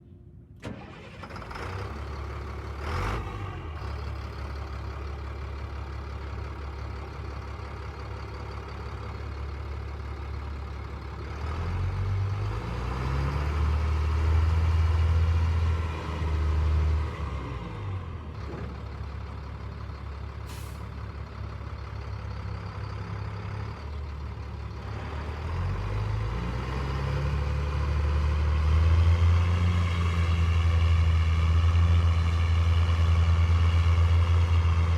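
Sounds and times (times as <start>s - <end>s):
truck diesel engine idling: 0.7s - 11.6s, 17.4s - 26.0s.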